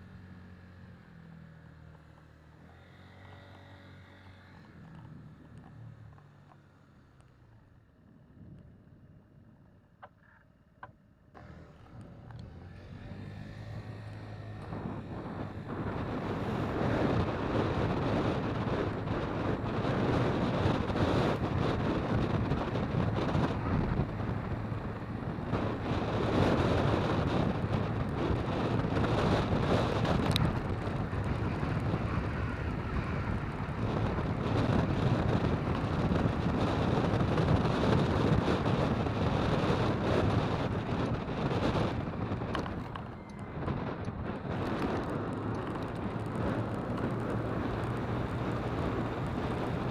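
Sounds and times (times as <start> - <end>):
wind buffeting microphone: 13.1 - 49.9.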